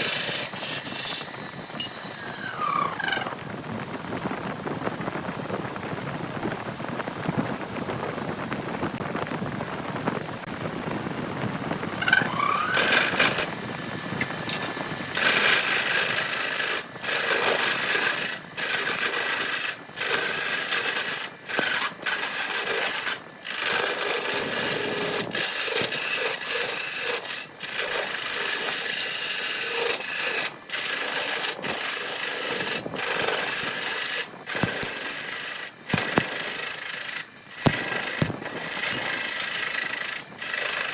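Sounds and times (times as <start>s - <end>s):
sanding wood: 0.0s - 1.5s, 14.5s - 40.9s.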